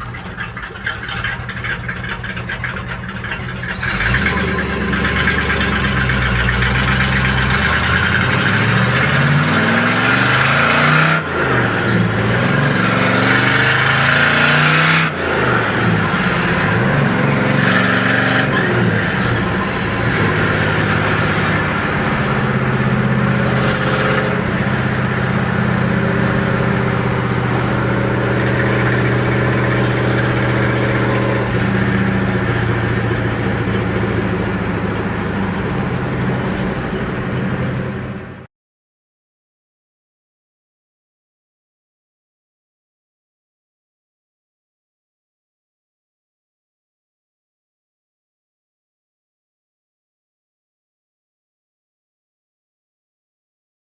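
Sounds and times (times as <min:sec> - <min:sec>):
car engine revving: 0:00.0 - 0:38.5.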